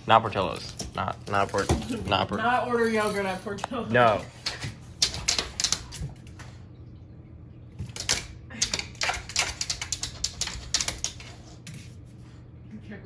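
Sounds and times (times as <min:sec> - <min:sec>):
low steady hum: 0:00.0 - 0:13.0
rapid clicking and tapping: 0:04.3 - 0:06.2, 0:07.8 - 0:11.5.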